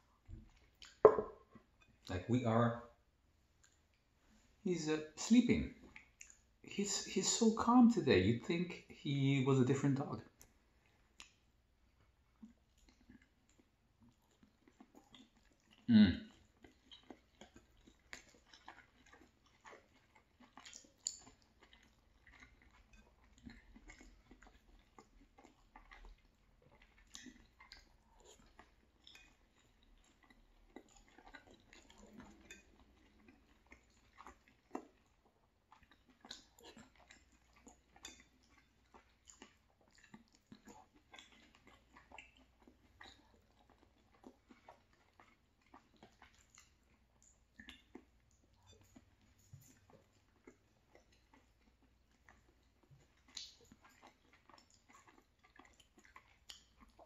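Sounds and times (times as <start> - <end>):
person chewing food: 0.0 - 2.1, 3.4 - 4.6, 5.7 - 6.7, 10.2 - 57.0
metal fork tapping a plate: 1.1 - 1.4.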